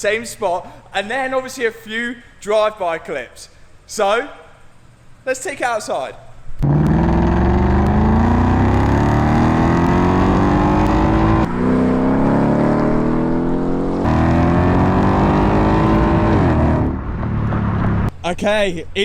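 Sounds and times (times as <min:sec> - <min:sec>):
car engine revving: 0:06.6 - 0:18.1.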